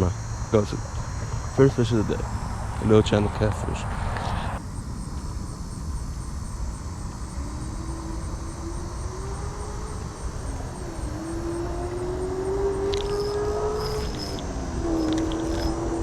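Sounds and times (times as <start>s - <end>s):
distant propeller airplane droning: 0.0s - 16.0s
wind on microphone: 0.0s - 16.0s.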